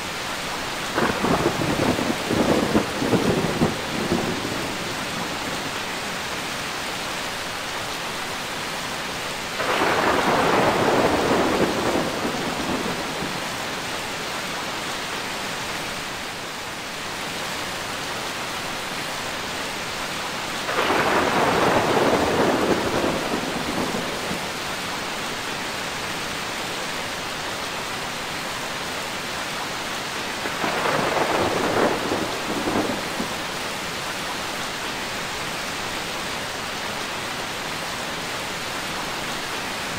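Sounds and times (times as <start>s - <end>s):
steady rain: 0.0s - 39.9s
thunder rolling: 1.0s - 5.4s, 9.6s - 13.4s, 20.7s - 24.5s, 30.4s - 33.4s.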